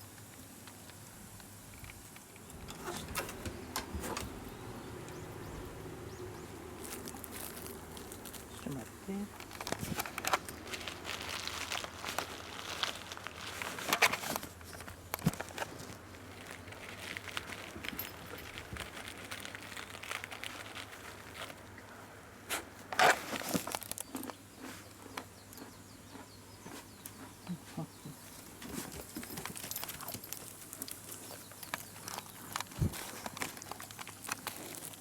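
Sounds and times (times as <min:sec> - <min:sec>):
wrapper crinkling and rustling: 0:02.2 - 0:22.0, 0:22.9 - 0:24.4, 0:28.4 - 0:35.0.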